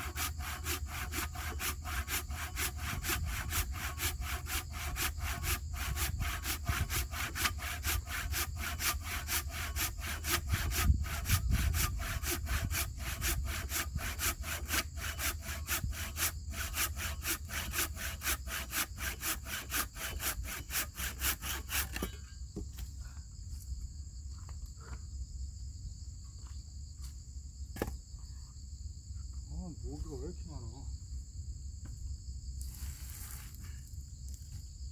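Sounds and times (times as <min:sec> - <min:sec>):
hand saw cutting wood: 0:00.0 - 0:22.2
high insect drone: 0:00.0 - 0:34.9.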